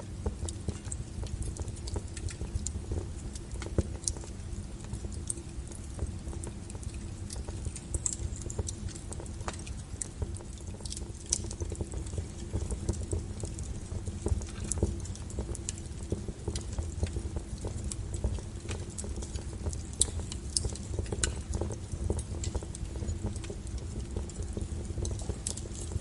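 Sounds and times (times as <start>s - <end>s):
fire low rumble: 0.0s - 26.0s
logs crackling and popping: 0.0s - 26.0s.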